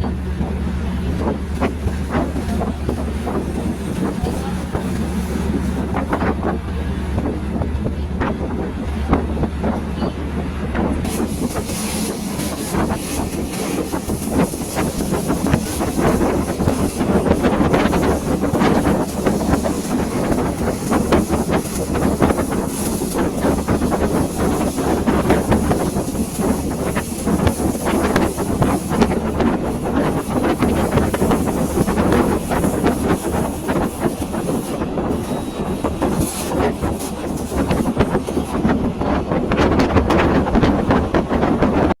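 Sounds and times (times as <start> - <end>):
train rumble and hum: 0.0 - 42.0.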